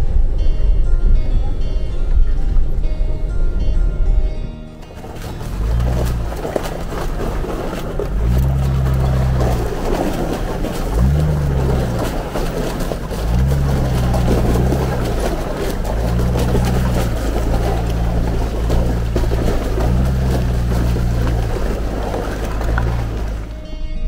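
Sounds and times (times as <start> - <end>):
engine revving under load: 4.8 - 23.7.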